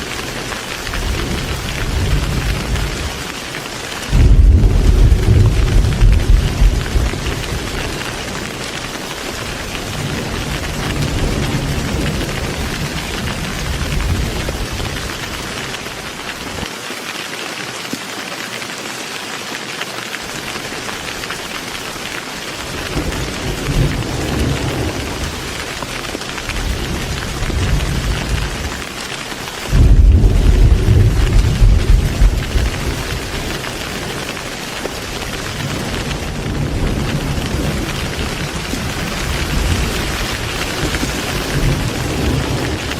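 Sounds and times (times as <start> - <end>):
heavy rain falling: 0.0 - 42.9
deep rolling thunder: 0.8 - 3.2, 4.1 - 15.4, 22.9 - 28.8, 29.7 - 42.9.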